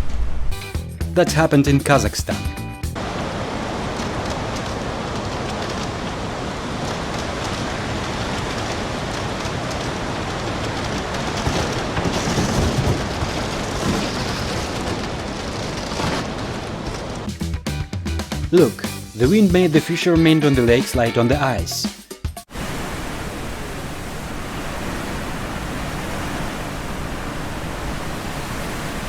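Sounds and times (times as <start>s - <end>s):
storm wind rushing: 0.0s - 0.6s, 3.0s - 17.3s, 22.5s - 29.0s.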